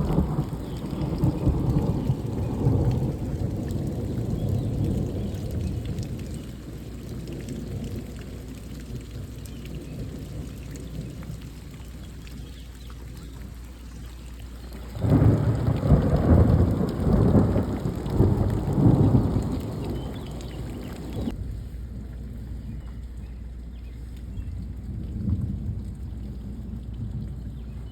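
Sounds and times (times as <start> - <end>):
loud thunderclap: 0.0 - 6.1, 14.9 - 21.4
thunder rumbling: 0.0 - 11.5, 14.7 - 22.8, 24.4 - 27.9
steady rain: 0.0 - 27.9.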